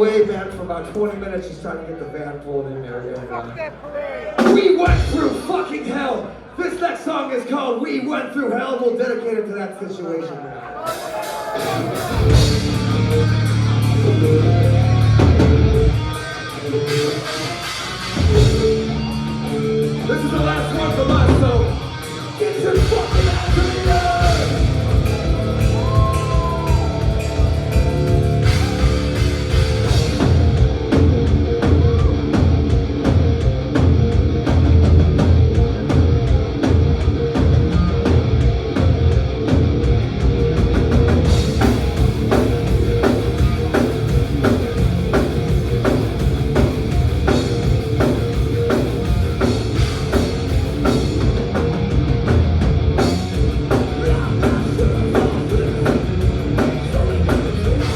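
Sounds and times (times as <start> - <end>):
fast drumming: 4.4 - 5.7, 10.9 - 14.3, 19.9 - 57.9
distorted electric guitars: 10.9 - 57.9
bass guitar: 11.3 - 57.9.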